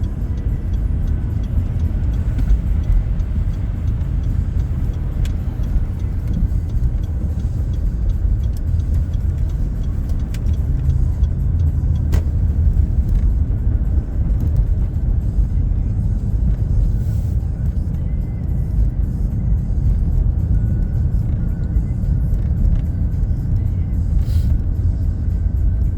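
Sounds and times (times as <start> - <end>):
faint clicks: 0.0 - 13.3
car road and engine rumble: 0.0 - 25.9.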